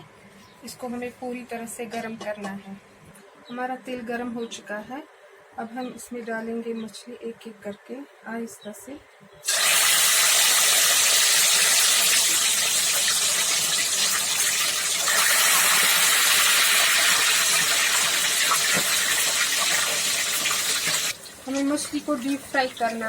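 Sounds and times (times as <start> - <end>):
fish sizzling in hot oil: 9.4 - 23.0.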